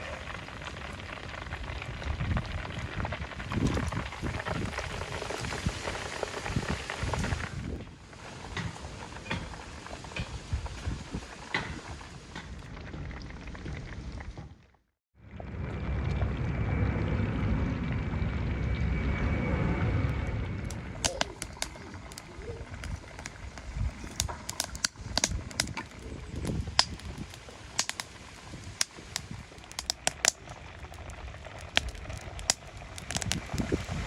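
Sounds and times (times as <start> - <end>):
sharp crackles and clicks: 0.0 - 8.2, 20.1 - 34.0
low rumbling noise: 15.2 - 34.0.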